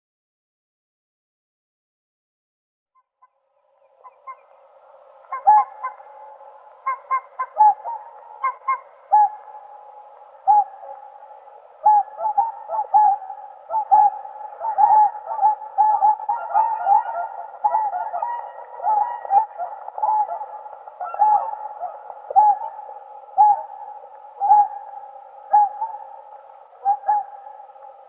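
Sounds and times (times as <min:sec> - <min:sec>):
swans honking: 0:05.2 - 0:27.7.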